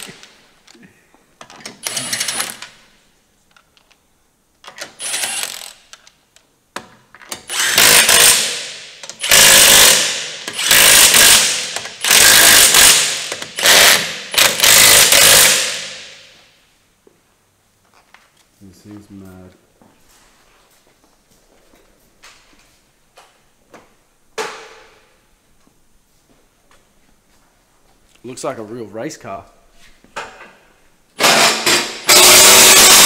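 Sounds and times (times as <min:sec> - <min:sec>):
impact wrench hammering: 0:07.4 - 0:16.4, 0:31.2 - 0:33.0.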